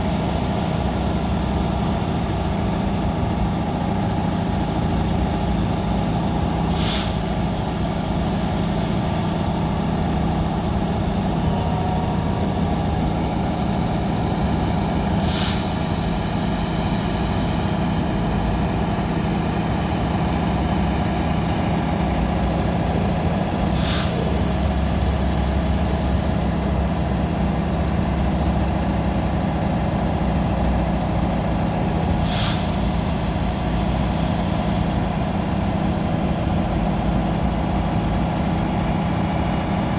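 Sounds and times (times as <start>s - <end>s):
sharp air hiss: 0.0s - 9.4s, 15.0s - 18.2s, 23.7s - 26.4s, 32.2s - 35.0s
diesel engine running: 0.0s - 39.9s.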